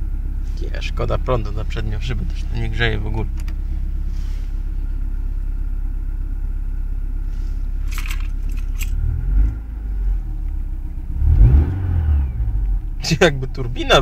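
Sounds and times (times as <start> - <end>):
car engine idling: 0.0 - 14.0
sharp rattling clicks: 7.9 - 9.0.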